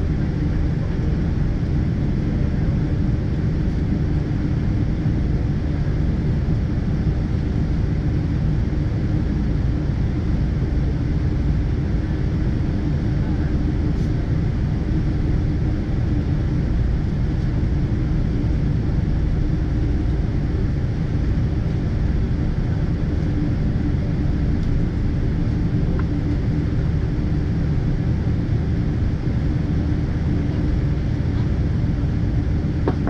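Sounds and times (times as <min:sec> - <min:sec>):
airplane cabin rumble: 0:00.0 - 0:33.0.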